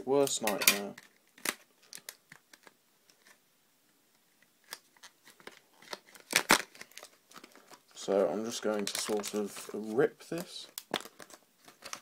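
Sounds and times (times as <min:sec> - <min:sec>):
packaging crackling and clicking: 0:00.8 - 0:03.4, 0:04.6 - 0:07.8, 0:08.5 - 0:09.8, 0:10.4 - 0:12.0.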